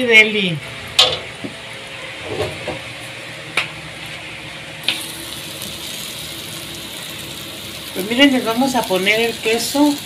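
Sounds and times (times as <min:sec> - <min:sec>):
tortillas sizzling in oil: 0:04.8 - 0:10.0.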